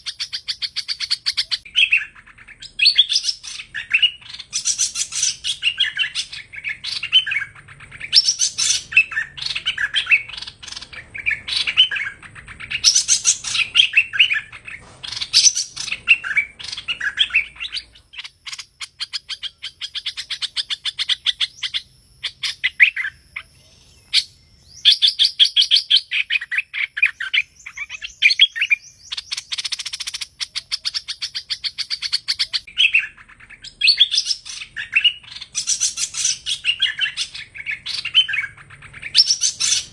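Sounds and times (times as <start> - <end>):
bird chattering chirps: 0.0 - 39.9.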